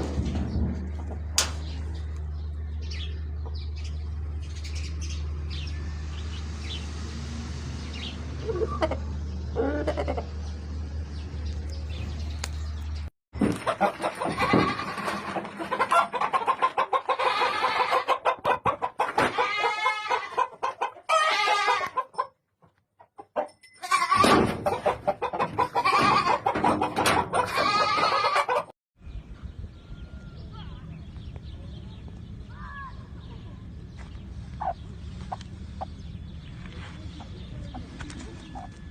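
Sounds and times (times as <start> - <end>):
birds clucking: 0.0 - 22.4, 24.3 - 28.7, 29.4 - 38.9
roosters crowing: 13.7 - 22.1, 23.9 - 28.7.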